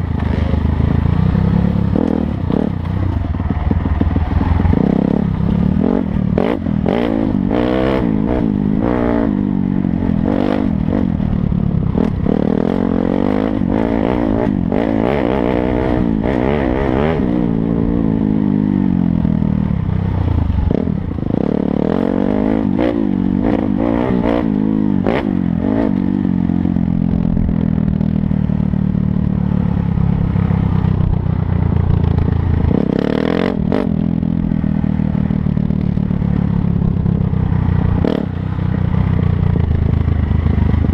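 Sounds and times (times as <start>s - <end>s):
dirt bike engine revving: 0.0s - 2.9s, 3.5s - 19.0s, 20.2s - 27.5s, 32.1s - 35.3s, 37.9s - 39.0s.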